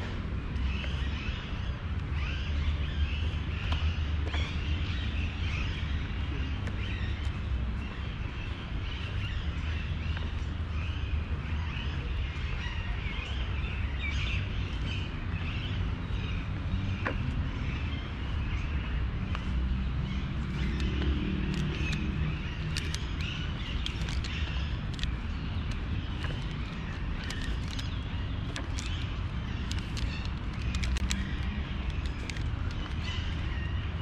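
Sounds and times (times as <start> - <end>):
birds chirping: 0.0 - 34.0
sharp clicks: 20.4 - 33.7.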